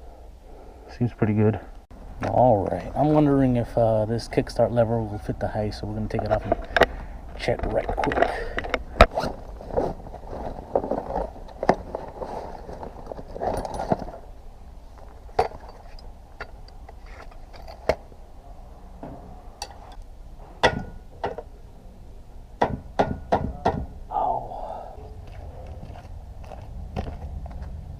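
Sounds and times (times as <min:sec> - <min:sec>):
rustling handling noise: 0:06.1 - 0:18.1
metal tools clinking and knocking: 0:13.1 - 0:14.2, 0:15.1 - 0:18.0.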